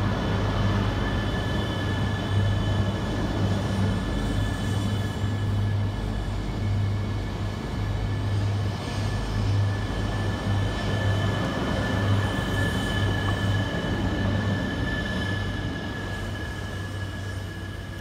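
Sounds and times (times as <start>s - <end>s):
train wheel and running noise: 0.0s - 18.0s.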